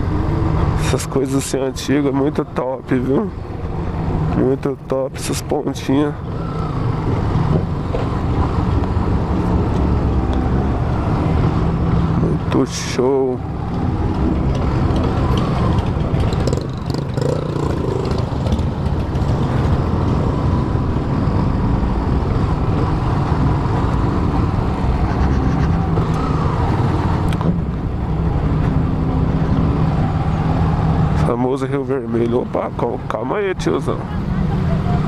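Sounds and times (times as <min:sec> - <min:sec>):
motorcycle engine running: 0:13.7 - 0:26.0.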